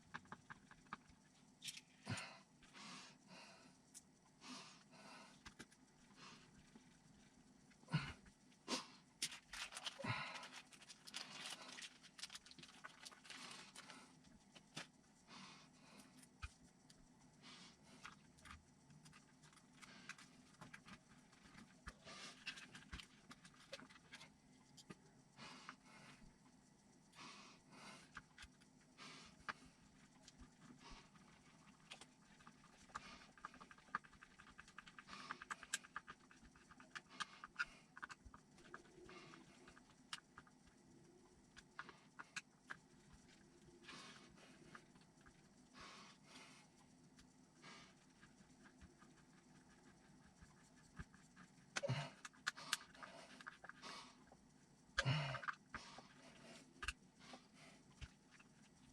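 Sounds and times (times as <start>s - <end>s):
small parts and tools clicking: 28.0s - 45.7s, 46.8s - 58.9s.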